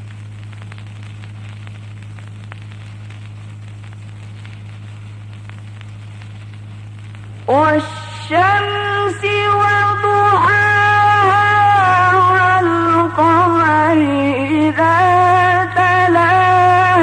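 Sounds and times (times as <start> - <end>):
hiss and crackle: 0.0 - 17.0
low electrical hum: 0.0 - 17.0
man reciting: 7.5 - 17.0.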